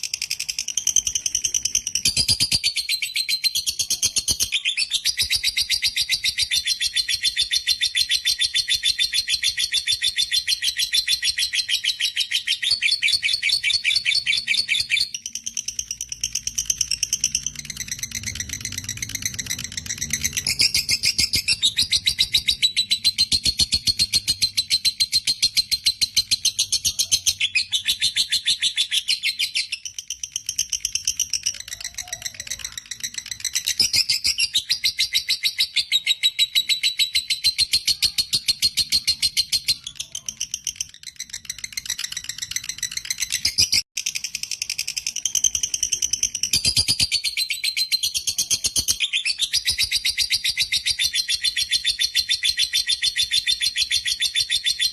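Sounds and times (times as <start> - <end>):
lovebird chattering trill: 0.0 - 54.9.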